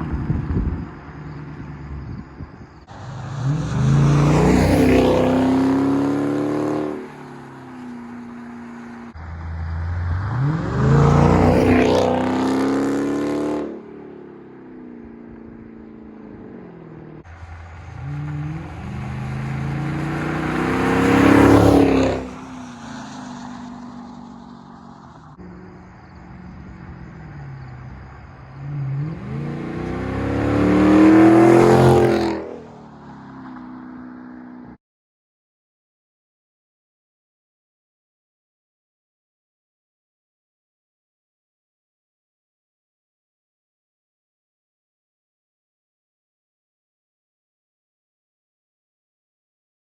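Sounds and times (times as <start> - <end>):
car engine idling and revving: 0.0 - 34.8.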